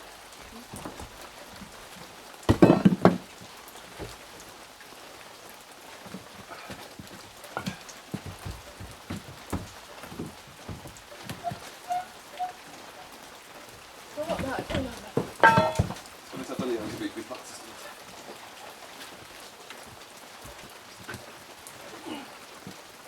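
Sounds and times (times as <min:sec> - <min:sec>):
steady rain: 0:00.0 - 0:23.0
water dripping: 0:00.0 - 0:23.0
knocks and clatter: 0:02.5 - 0:03.3, 0:06.1 - 0:12.6, 0:14.2 - 0:16.1.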